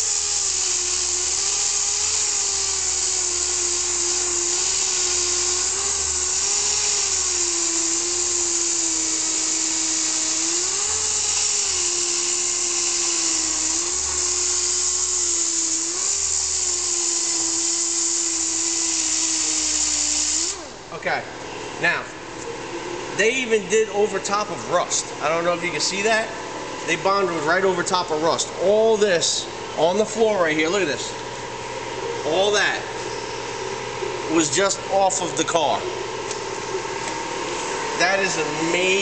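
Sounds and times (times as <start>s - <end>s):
power grinder grinding filler: 0.0s - 20.9s, 32.3s - 39.0s.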